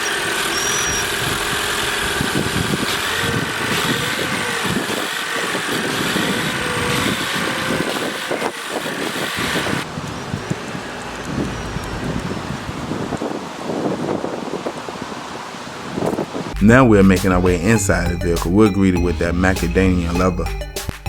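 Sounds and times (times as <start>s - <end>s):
car engine idling: 0.0s - 13.2s.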